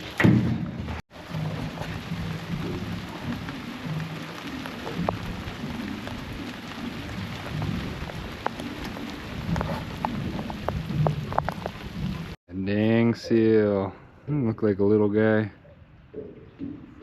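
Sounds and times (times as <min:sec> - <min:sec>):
wind buffeting microphone: 0:01.2 - 0:12.4.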